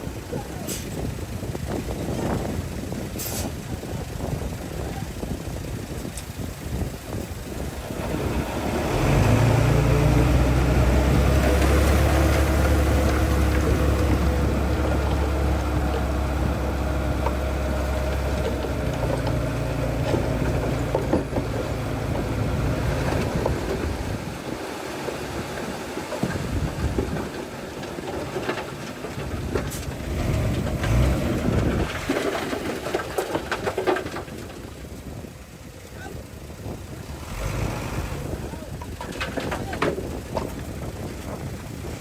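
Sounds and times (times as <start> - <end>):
heavy machinery diesel engine: 0.0 - 42.0
wind noise: 0.0 - 42.0
knocks and clanks: 17.2 - 21.7, 26.0 - 34.7, 38.7 - 41.5.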